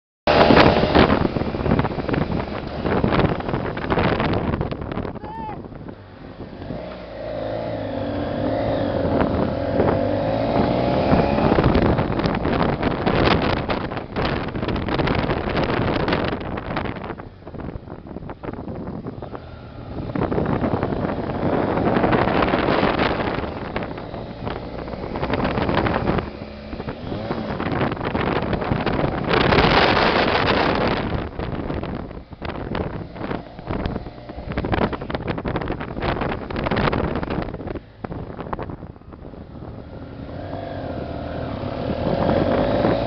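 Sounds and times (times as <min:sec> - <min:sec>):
motorcycle engine running: 0:00.3 - 0:43.0
wind buffeting microphone: 0:00.3 - 0:43.0.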